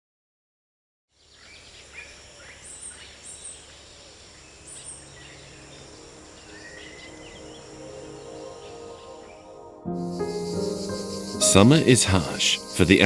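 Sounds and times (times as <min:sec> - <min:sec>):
high insect buzz: 0:01.3 - 0:13.0.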